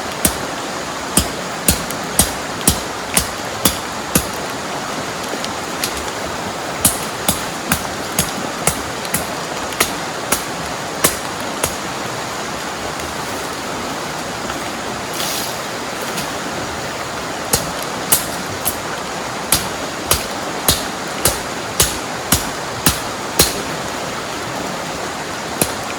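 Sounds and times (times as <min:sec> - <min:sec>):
heavy rain: 0:00.0 - 0:25.9
river water rushing: 0:00.0 - 0:25.9
sharp knocks: 0:01.2 - 0:04.4, 0:06.8 - 0:11.8, 0:19.5 - 0:23.7.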